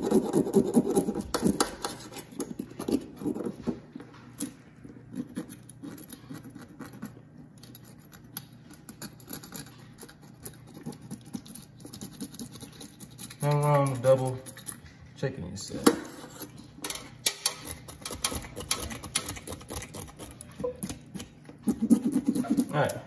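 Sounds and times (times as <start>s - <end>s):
knife scraping fish scales: 15.9s - 16.6s.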